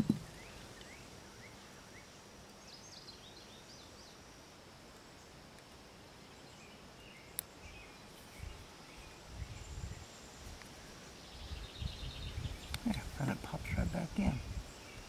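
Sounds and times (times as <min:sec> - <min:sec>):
soft low handling bumps: 0:00.0 - 0:00.4.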